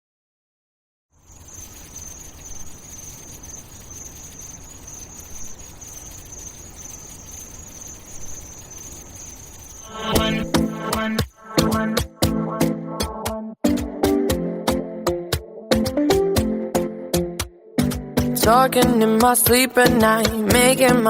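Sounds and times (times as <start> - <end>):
insects chirring: 1.2 - 12.2
pop song with plucked notes: 10.1 - 21.0.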